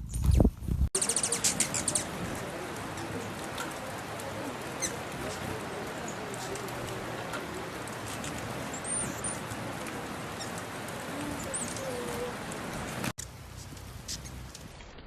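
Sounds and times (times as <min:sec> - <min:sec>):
high-pitched bird chirps: 0:01.0 - 0:02.2
steady background noise: 0:01.0 - 0:15.0.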